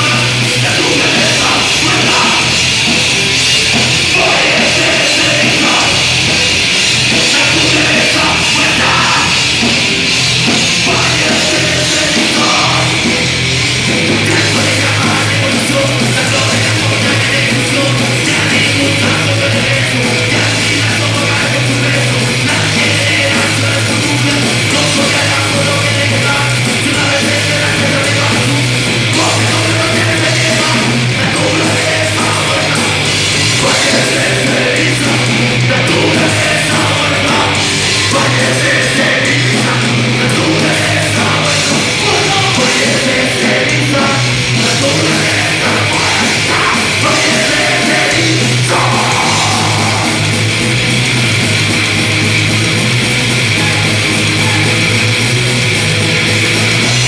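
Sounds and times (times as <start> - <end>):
rock band playing live: 0.0 - 57.0.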